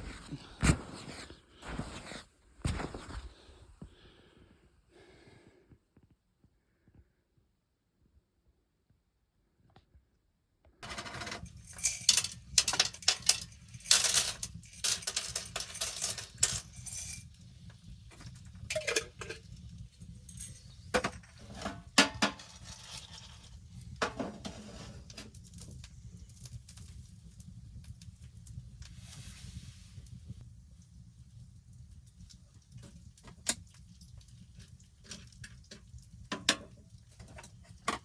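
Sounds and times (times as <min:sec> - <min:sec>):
scraping and clinking handling noises: 0:10.8 - 0:17.4, 0:18.1 - 0:25.7, 0:34.6 - 0:38.0.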